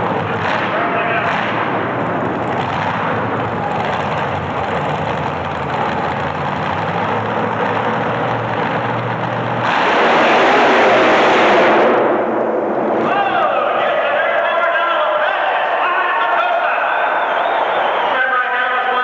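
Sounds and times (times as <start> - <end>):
truck engine under throttle: 0.0 - 13.1.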